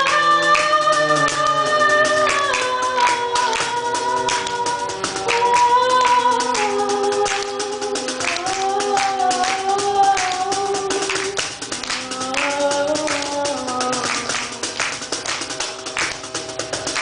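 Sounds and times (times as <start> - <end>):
cello: 0.0 - 3.6
person singing: 0.0 - 15.0
hand percussion beat: 0.0 - 17.0.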